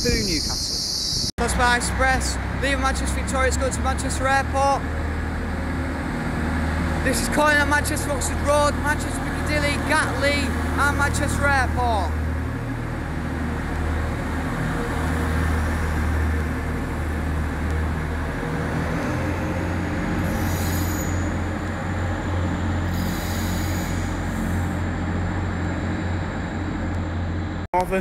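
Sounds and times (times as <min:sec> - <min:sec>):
train engines droning: 0:00.0 - 0:28.0
short hisses: 0:20.3 - 0:21.3, 0:22.9 - 0:24.8.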